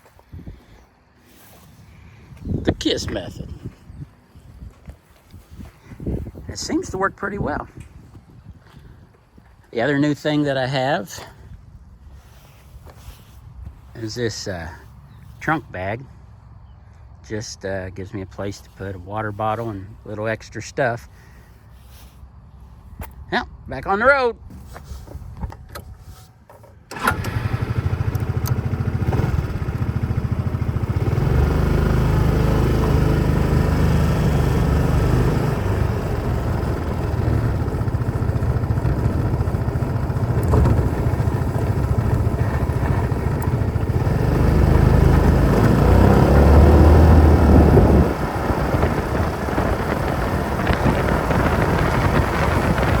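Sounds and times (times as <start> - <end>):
scooter engine running: 26.9 - 53.0.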